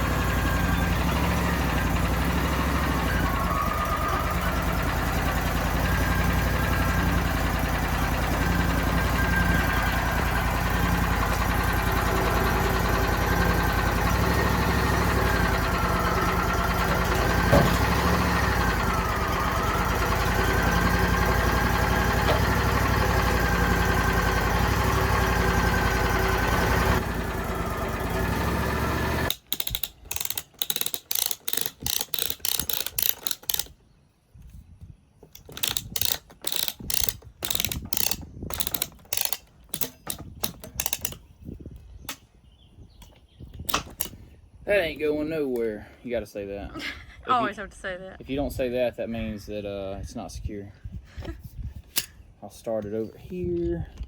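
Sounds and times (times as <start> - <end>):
engine running with whine: 0.0 - 29.5
ratchet clicking rapidly: 29.3 - 33.8, 35.3 - 41.2.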